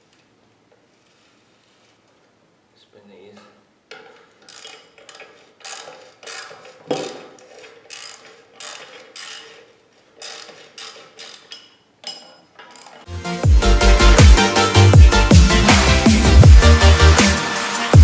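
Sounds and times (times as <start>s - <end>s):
electronic dance music: 13.1s - 18.0s.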